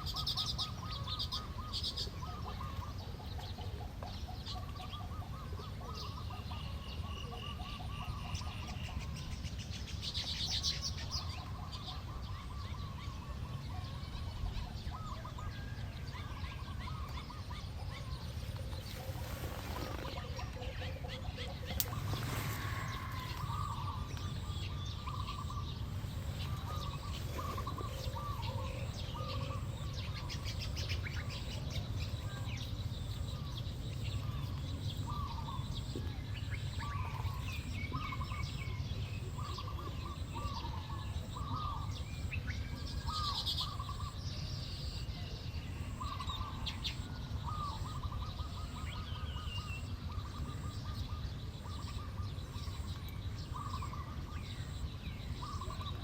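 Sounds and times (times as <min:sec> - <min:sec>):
small birds calling: 0:00.0 - 0:56.0
higher bird chirps: 0:12.2 - 0:35.8.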